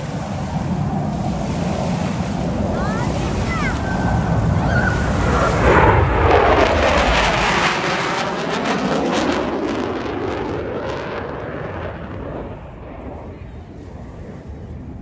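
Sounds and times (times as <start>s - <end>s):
jet roaring overhead: 0.0s - 15.0s.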